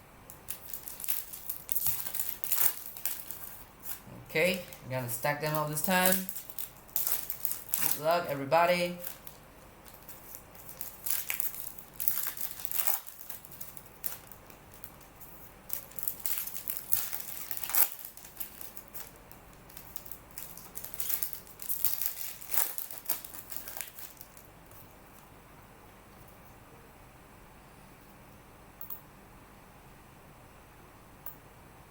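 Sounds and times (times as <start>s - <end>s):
plastic packaging crinkling and tearing: 0.3s - 24.8s.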